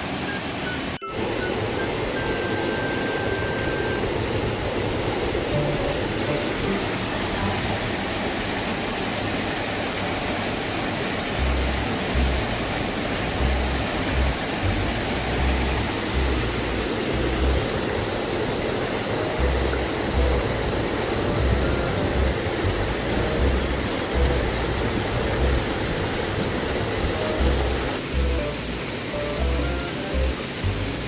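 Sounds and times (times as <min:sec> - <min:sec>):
waterfall rushing: 0:00.0 - 0:31.0
low rumbles: 0:11.4 - 0:17.9.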